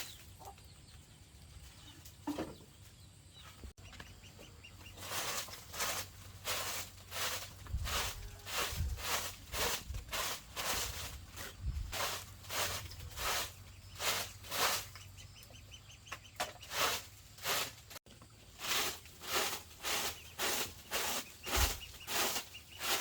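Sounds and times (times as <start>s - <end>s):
footsteps on crunchy ground: 3.4s - 15.2s, 16.6s - 23.0s.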